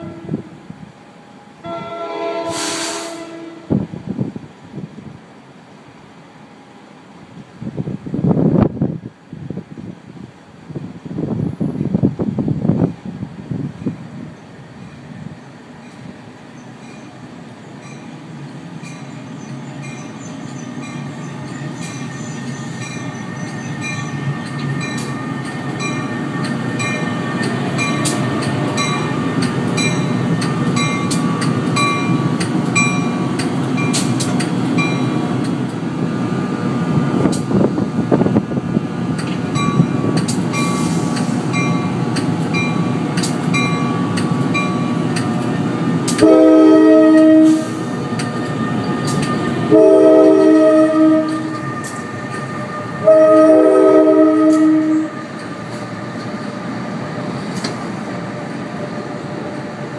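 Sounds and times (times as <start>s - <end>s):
locomotive horn blast: 0.0s - 0.5s, 1.6s - 3.8s, 46.2s - 47.9s, 49.6s - 55.4s
train rumble: 0.0s - 59.9s.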